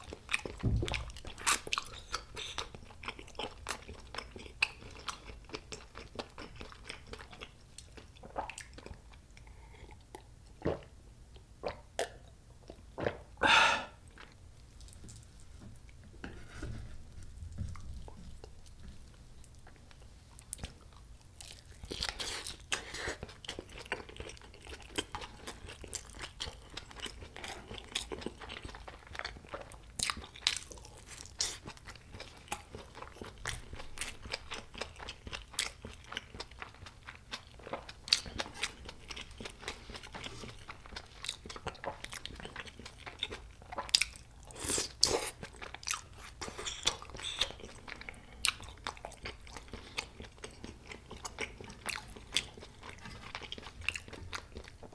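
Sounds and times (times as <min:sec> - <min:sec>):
close chewing with wet clicks: 0:00.0 - 0:10.8, 0:17.8 - 0:54.9.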